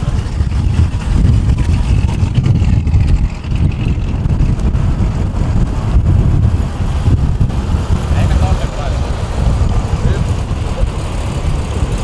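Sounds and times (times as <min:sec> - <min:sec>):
car engines rumbling: 0:00.0 - 0:12.0
wind buffeting microphone: 0:00.0 - 0:12.0.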